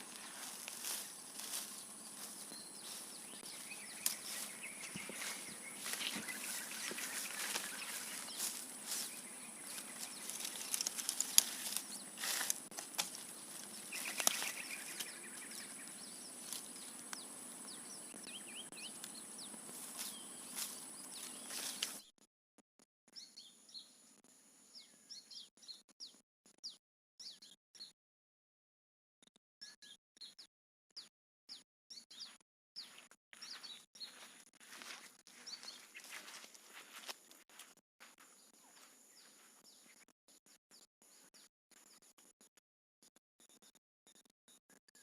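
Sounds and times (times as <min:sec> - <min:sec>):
bird chirps: 0:00.0 - 0:12.5, 0:13.2 - 0:22.1, 0:29.6 - 0:36.5.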